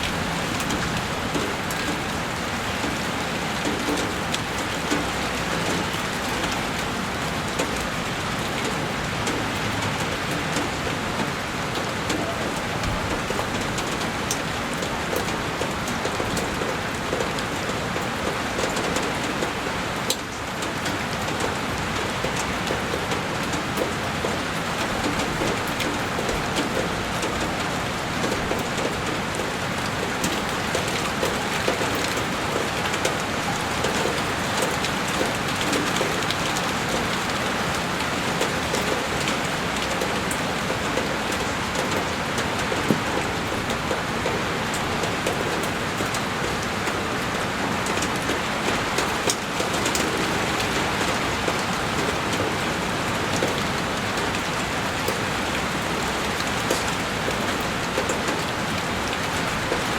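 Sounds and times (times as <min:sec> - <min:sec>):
heavy rain on a window: 0:00.0 - 0:59.9.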